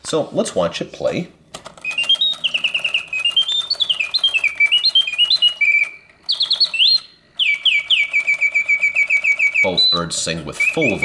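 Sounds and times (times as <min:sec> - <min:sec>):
mechanism clicking: 0:01.5 - 0:09.7
mechanical bird whistling trills: 0:01.8 - 0:11.0.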